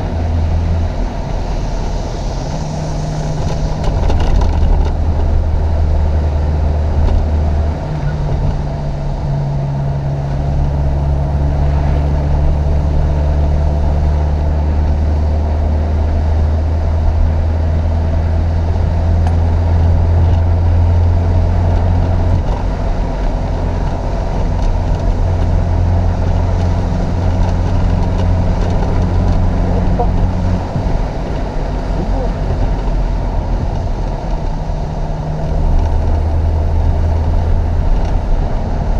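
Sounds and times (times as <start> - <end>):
car engine running hard: 0.0 - 38.9.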